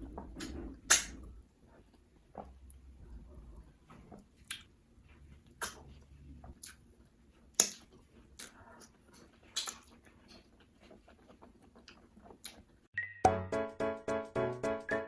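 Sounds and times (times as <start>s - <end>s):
wet mouth smacks and chewing: 4.4s - 4.7s, 6.6s - 12.8s.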